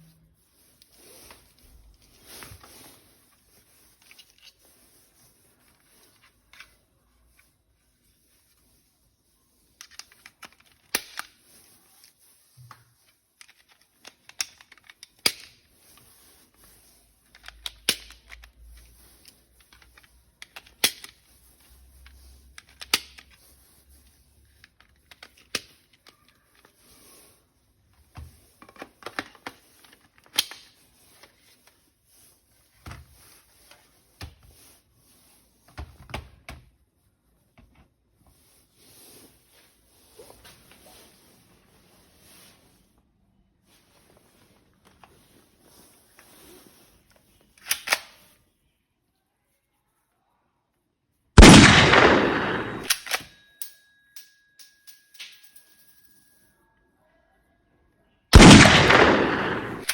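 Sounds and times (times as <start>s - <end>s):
plastic toy parts snapping together: 9.8s - 11.4s, 13.4s - 15.6s, 17.4s - 18.5s, 19.6s - 21.2s, 22.6s - 23.4s, 47.6s - 48.2s.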